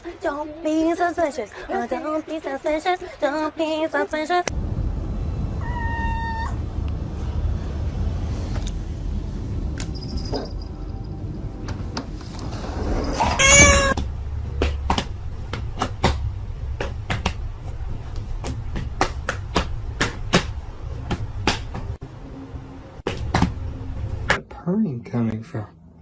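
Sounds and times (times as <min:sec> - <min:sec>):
steady low rumble: 0:04.5 - 0:12.7
cat meowing: 0:05.6 - 0:06.6, 0:13.2 - 0:14.0.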